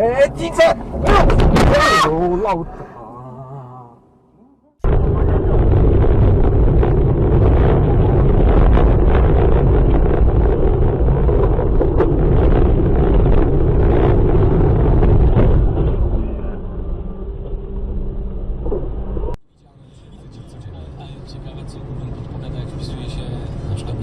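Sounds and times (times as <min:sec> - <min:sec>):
rumbling vehicle: 0:00.0 - 0:24.0
sharp crackles and knocks: 0:04.8 - 0:16.2
wind noise on microphone: 0:04.8 - 0:19.4.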